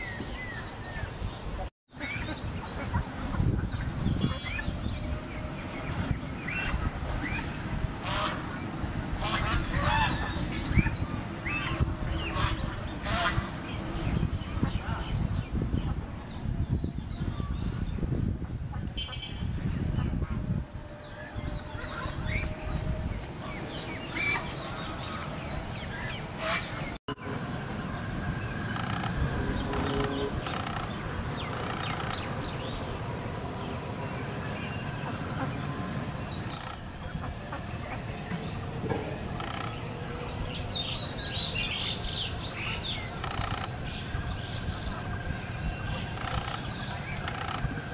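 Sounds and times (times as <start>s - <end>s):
birds chirping: 0.0s - 47.9s
low outdoor rumble: 0.0s - 47.9s
harsh bird calls: 28.3s - 47.9s.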